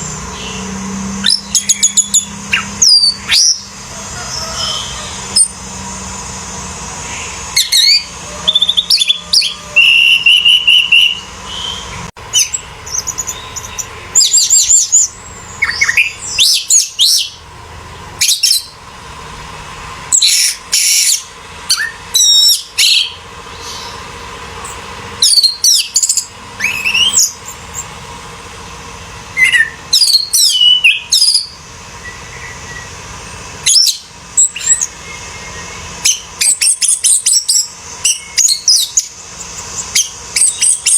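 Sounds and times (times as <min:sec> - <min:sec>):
thrush singing whistled phrases: 0:00.0 - 0:05.7, 0:07.1 - 0:17.4, 0:18.2 - 0:18.8, 0:20.1 - 0:24.1, 0:25.2 - 0:28.0, 0:29.3 - 0:40.9.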